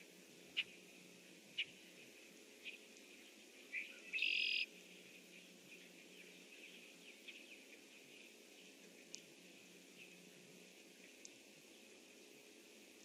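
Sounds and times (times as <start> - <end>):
blackbird buzzy trill song: 0.0 - 0.9, 1.5 - 9.3
faint bird chirps: 2.6 - 9.2.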